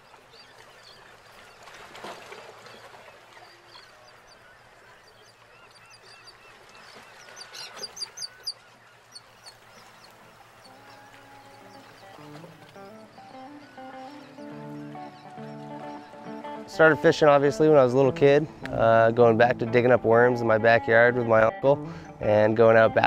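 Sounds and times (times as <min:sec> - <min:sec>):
waterfront background noise: 0:00.0 - 0:23.0
birds calling in high notes: 0:02.7 - 0:23.0
music: 0:10.9 - 0:23.0.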